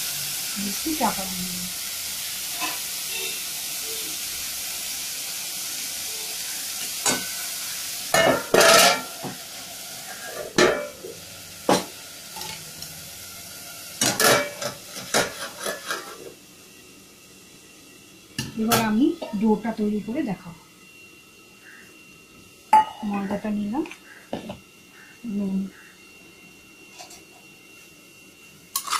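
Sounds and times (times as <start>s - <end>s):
food sizzling in hot oil: 0.0s - 28.9s
metal pan and utensils clanking: 2.5s - 2.9s, 6.8s - 7.4s, 8.1s - 9.4s, 10.1s - 11.1s, 11.7s - 12.7s, 14.0s - 16.4s.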